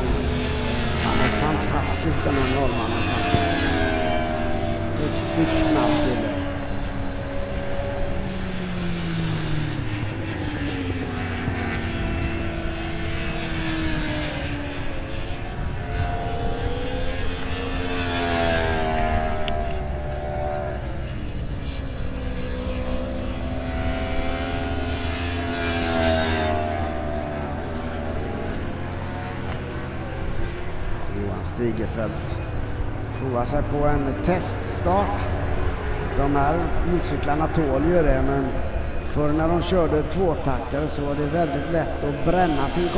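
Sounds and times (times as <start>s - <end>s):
motorcycle engines revving and passing: 0.0s - 42.9s.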